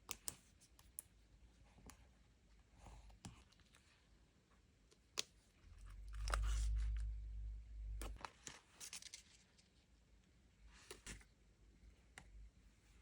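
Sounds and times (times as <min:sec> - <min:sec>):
light clicks and scratches: 0:04.9 - 0:07.2, 0:07.8 - 0:09.8
low dull rumble: 0:05.8 - 0:08.2
paper crinkling: 0:08.4 - 0:09.7.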